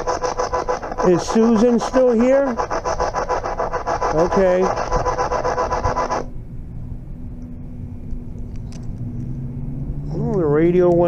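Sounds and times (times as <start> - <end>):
pulsing radio static: 0.0 - 6.3.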